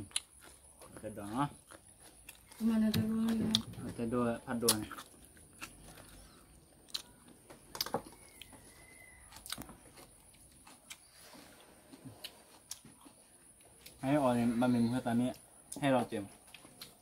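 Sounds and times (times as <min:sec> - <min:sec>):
faint bird chirp: 0:06.0 - 0:07.2, 0:08.0 - 0:09.6.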